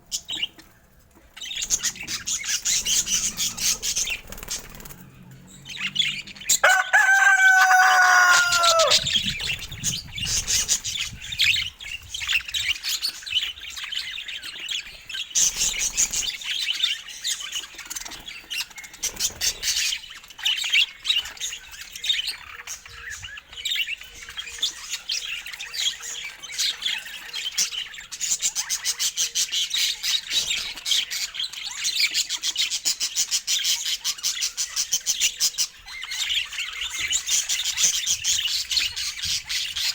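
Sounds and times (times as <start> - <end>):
budgerigars chirping and chattering: 0.0 - 39.9
long held bird call: 6.6 - 9.2.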